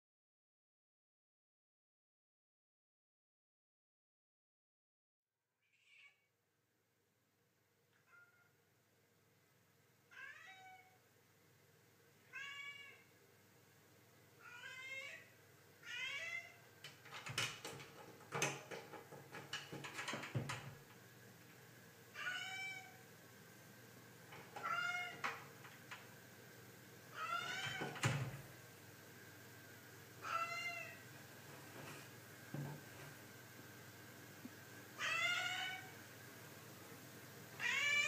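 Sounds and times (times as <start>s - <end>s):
cat meowing: 5.6s - 6.3s, 8.0s - 8.5s, 10.1s - 11.0s, 12.2s - 13.1s, 14.4s - 16.6s, 22.2s - 23.0s, 24.6s - 25.3s, 27.1s - 27.9s, 30.2s - 31.0s, 35.0s - 35.9s, 37.6s - 38.0s
sharp knocks and clicks: 16.8s - 21.0s.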